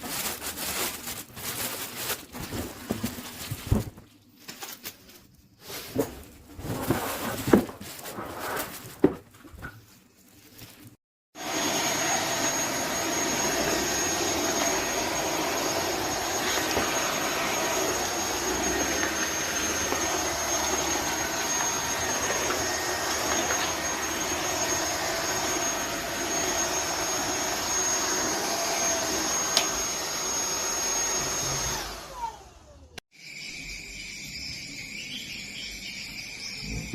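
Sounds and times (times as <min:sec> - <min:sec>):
vacuum cleaner running: 0:11.3 - 0:33.4.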